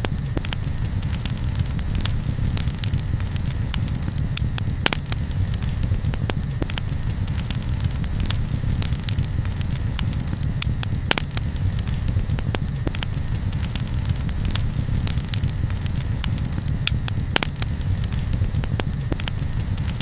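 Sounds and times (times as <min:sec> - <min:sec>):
campfire crackling and popping: 0:00.0 - 0:20.0
low rumble of flames: 0:00.0 - 0:20.0.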